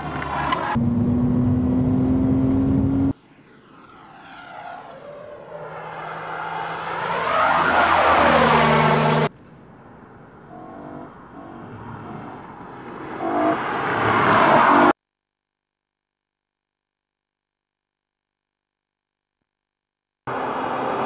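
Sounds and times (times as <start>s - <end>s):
car engine approaching: 0.0s - 7.3s.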